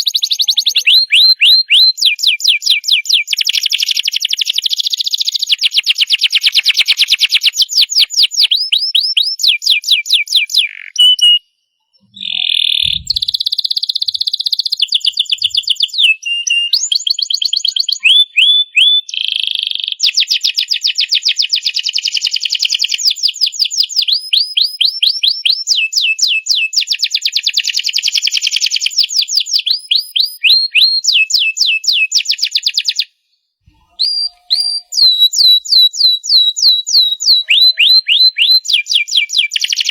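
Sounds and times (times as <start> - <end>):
canary singing trills: 0.0 - 19.2, 33.7 - 39.9.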